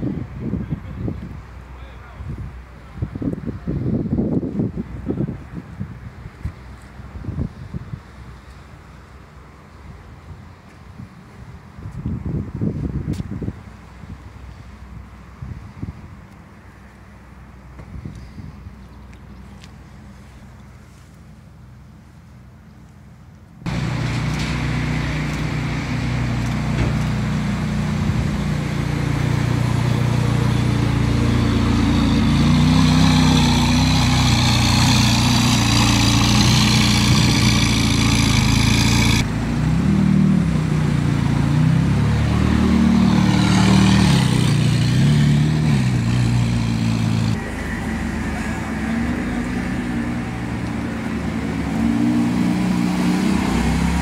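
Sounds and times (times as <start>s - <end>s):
sports car engines revving: 23.7s - 54.0s.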